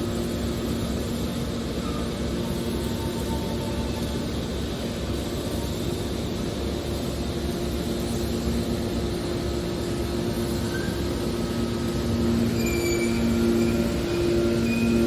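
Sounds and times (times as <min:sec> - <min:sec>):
hydraulic baler humming: 0:09.2 - 0:15.0
faint high squeaks: 0:10.5 - 0:11.6, 0:12.2 - 0:15.0.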